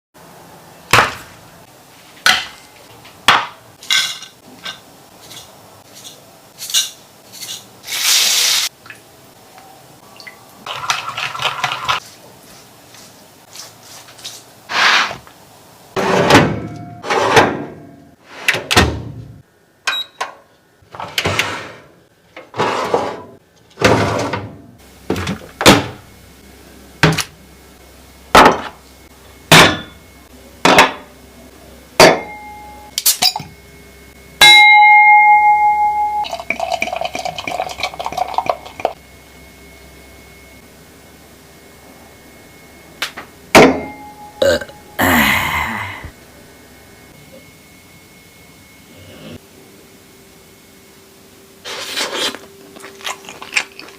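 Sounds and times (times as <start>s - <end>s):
loud steady electronic tone: 26.1s - 34.4s, 38.6s - 51.6s.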